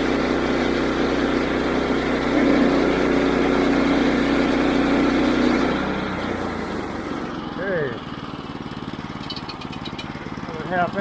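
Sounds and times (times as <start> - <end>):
band blade cutting log: 0.0 - 6.4
sawmill engine running: 0.0 - 11.0.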